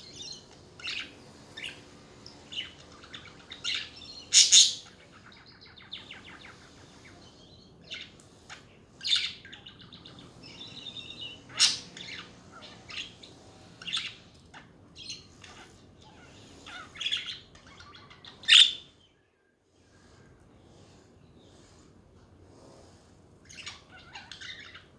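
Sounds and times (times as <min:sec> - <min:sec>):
budgerigars chattering: 0:00.1 - 0:18.9.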